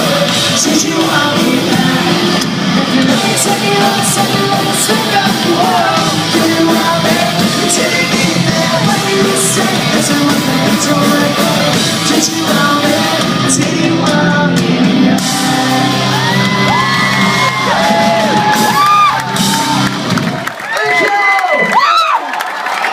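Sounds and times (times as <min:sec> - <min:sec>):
crowd whooping and yelling: 0:00.0 - 0:10.0, 0:15.1 - 0:22.9
person singing: 0:00.0 - 0:19.2
live pop-punk band playing: 0:00.0 - 0:20.5.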